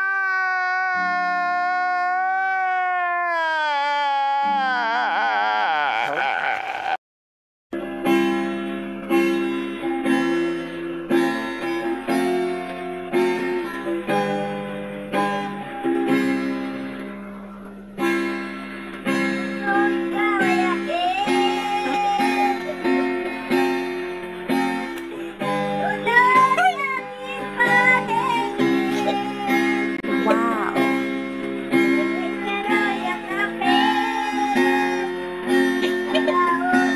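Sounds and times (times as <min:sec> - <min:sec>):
acoustic guitar strumming: 0:18.0 - 0:36.9
person singing: 0:19.6 - 0:23.3, 0:25.2 - 0:30.9, 0:31.9 - 0:36.9.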